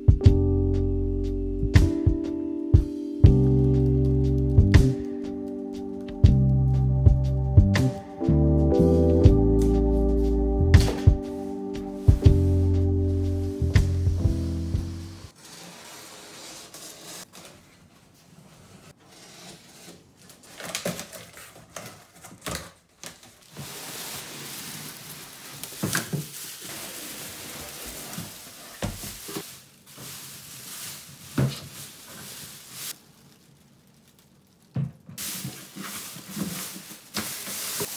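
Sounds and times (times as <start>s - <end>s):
plastic packaging crinkling: 20.2s - 37.9s.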